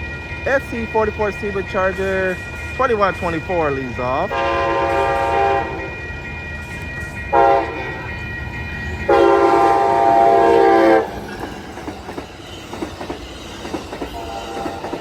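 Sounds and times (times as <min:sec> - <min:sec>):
train rumbling past: 0:00.0 - 0:15.0
train horn blasts: 0:04.3 - 0:05.9, 0:07.3 - 0:07.8, 0:09.1 - 0:11.2, 0:14.2 - 0:15.0.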